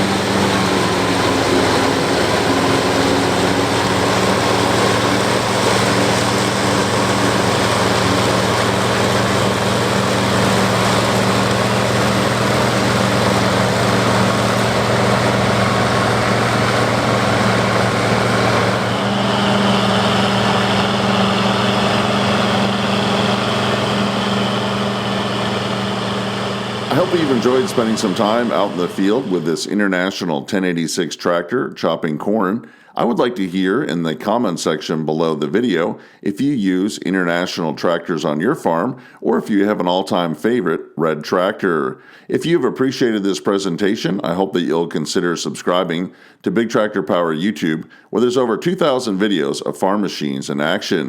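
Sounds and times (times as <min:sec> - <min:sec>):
diesel tractor engine running: 0:00.0 - 0:29.7
machinery rushing noise: 0:00.0 - 0:29.9.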